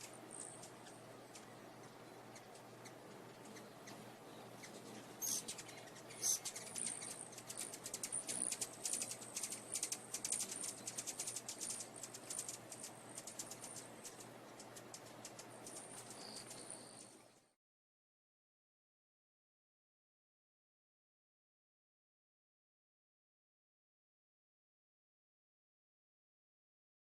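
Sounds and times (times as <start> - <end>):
bird chirping high-pitched: 0.0 - 17.2
faint low hum: 0.0 - 17.6.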